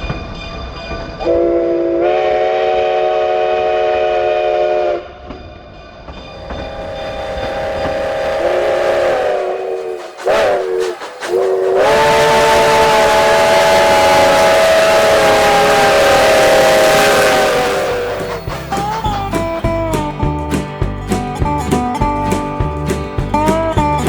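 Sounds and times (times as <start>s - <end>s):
steam locomotive chime whistle: 1.2s - 5.2s, 6.1s - 20.2s
loud steam hiss: 6.2s - 20.2s.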